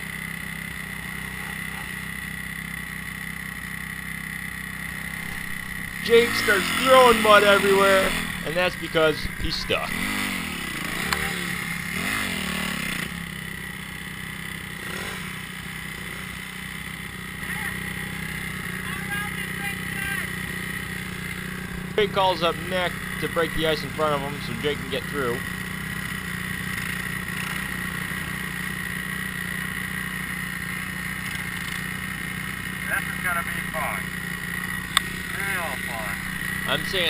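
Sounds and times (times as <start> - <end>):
dirt bike engine revving: 0.0 - 37.0
wheel spinning in mud: 4.9 - 18.8.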